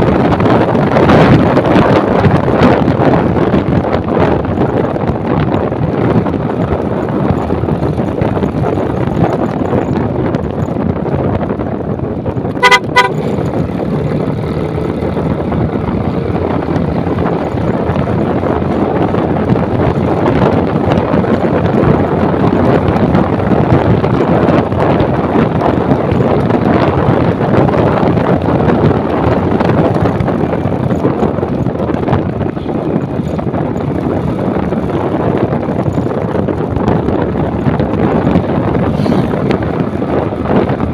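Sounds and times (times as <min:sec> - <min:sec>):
wind rushing over microphone: 0:00.0 - 0:40.9
horn beeps: 0:12.6 - 0:13.3.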